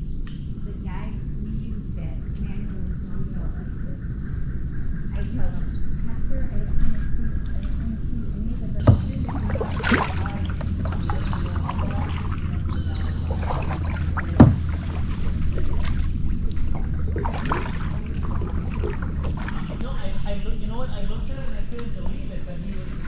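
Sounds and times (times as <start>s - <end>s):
water sloshing against hulls: 2.4s - 23.0s
paddle strokes: 8.4s - 23.0s
sharp knocks: 8.8s - 19.8s.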